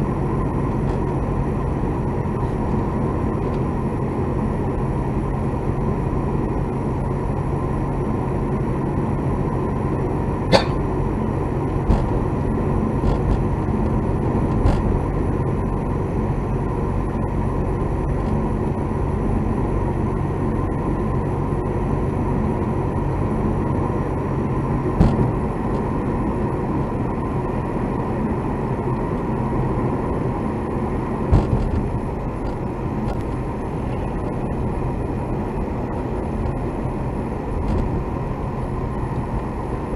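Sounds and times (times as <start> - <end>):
car engine and tyre drone: 0.0 - 39.9
sharp clicks inside car: 11.8 - 12.2, 13.0 - 14.9, 25.0 - 25.9, 31.3 - 33.4.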